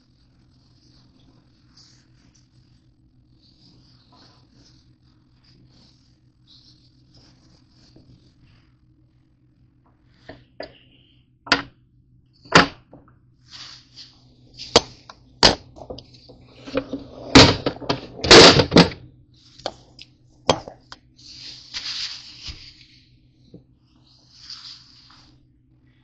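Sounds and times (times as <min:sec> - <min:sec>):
faint steady hum: 0:00.0 - 0:26.0
sharp knocks of food prep: 0:11.5 - 0:11.7
scraping and rustling: 0:12.5 - 0:25.4.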